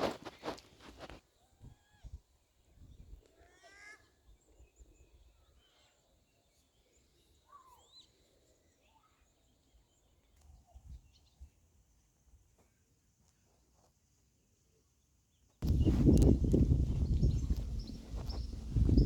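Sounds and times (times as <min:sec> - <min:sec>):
faint bird calls: 0:15.6 - 0:19.0
low dull thumps: 0:15.6 - 0:19.0.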